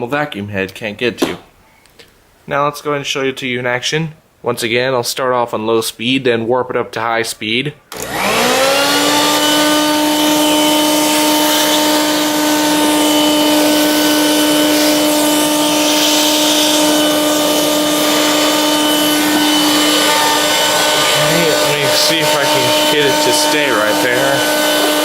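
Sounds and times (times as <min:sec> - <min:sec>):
stick vacuum motor humming: 0:07.9 - 0:25.0.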